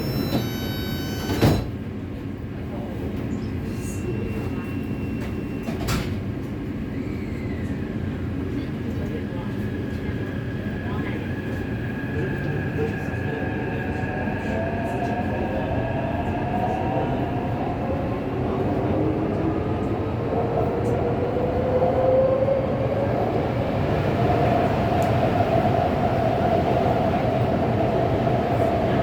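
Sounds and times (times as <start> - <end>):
electric train motors whining: 0.0 - 1.7.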